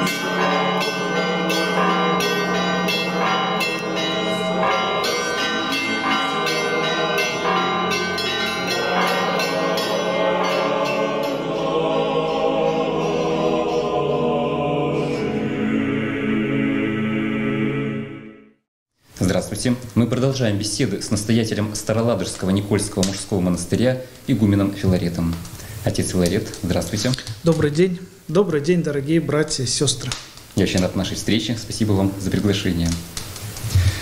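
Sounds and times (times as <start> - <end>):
church bells ringing: 0.0 - 14.4
sustained musical tone: 0.0 - 18.4.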